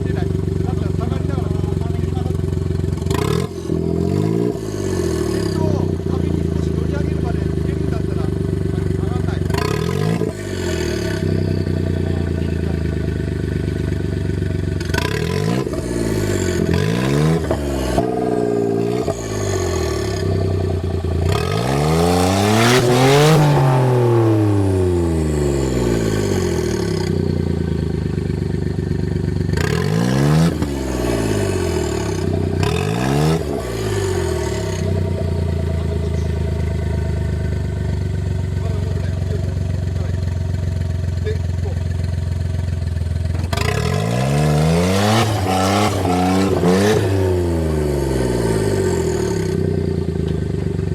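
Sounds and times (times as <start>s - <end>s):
truck engine revving: 0.0s - 50.9s.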